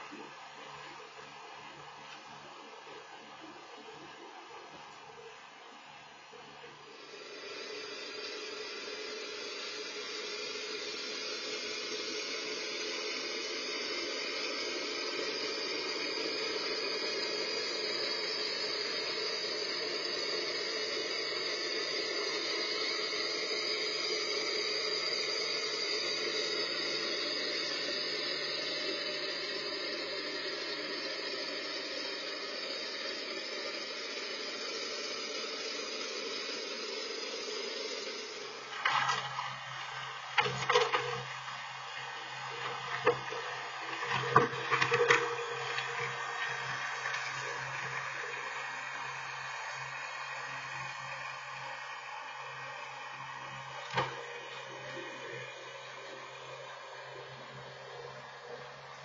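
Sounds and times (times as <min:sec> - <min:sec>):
tractor snowblower running: 0:37.4 - 0:59.0.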